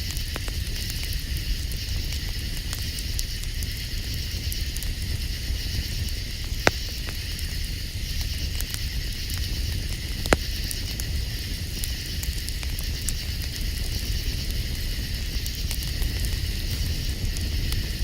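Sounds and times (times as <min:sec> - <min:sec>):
campfire crackling: 0:00.0 - 0:18.0
sharp pops: 0:06.6 - 0:07.1.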